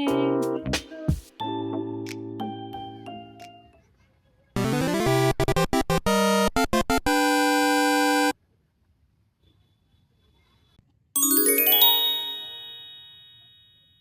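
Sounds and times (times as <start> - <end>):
bright shimmering chord: 11.2 - 13.7.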